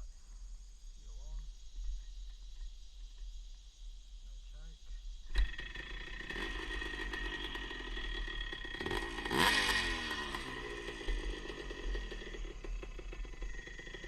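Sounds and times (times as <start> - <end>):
two-stroke motorcycle engine revving: 5.3 - 14.0.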